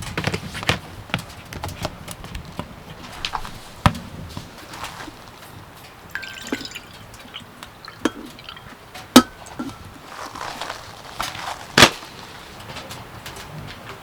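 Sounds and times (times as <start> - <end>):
hard objects knocking and clinking: 6.1 - 10.6.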